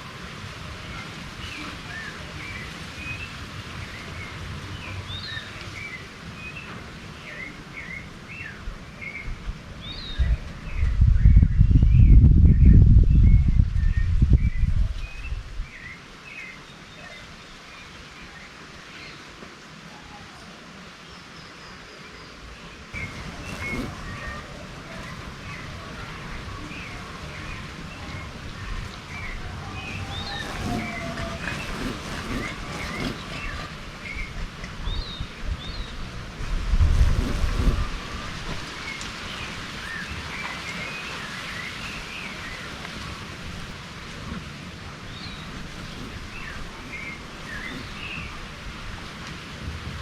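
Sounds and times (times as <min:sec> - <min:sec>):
outdoor background hiss: 0:00.0 - 0:50.0
birds chirping: 0:20.9 - 0:49.1.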